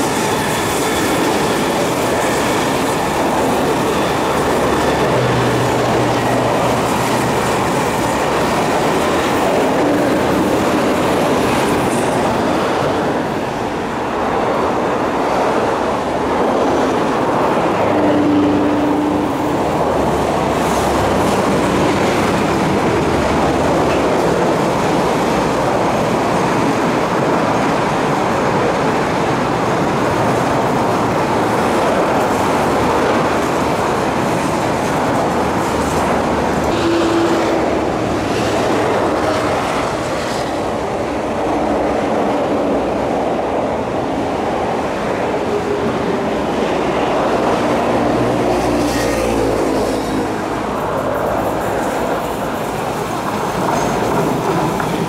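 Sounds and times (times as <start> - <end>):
train wheels rumbling on rails: 0.0 - 55.0
clicking over rail joints: 51.2 - 55.0.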